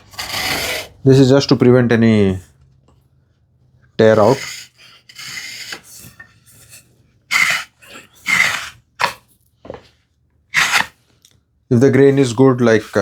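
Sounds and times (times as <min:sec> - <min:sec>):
blade scoring wood: 0:00.0 - 0:01.0, 0:04.0 - 0:09.2, 0:10.5 - 0:11.0, 0:11.9 - 0:13.0.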